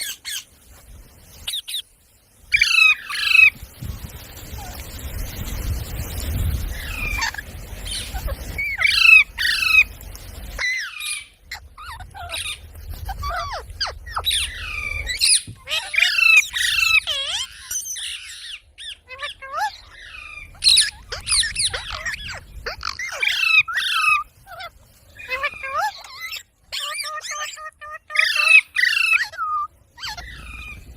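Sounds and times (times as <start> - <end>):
parrot squawking: 2.5 - 3.5, 6.8 - 9.9, 10.6 - 30.9.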